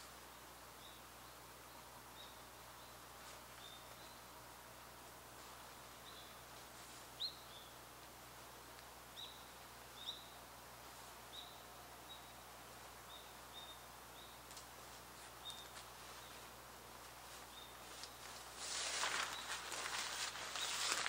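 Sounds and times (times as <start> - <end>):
faint woodland hiss: 0.0 - 21.0
small bird chirping: 0.6 - 4.4, 5.8 - 6.5, 7.1 - 7.9, 9.1 - 10.5, 11.3 - 16.5, 17.3 - 18.5, 19.2 - 21.0
faint rustles: 3.0 - 8.9, 14.4 - 21.0.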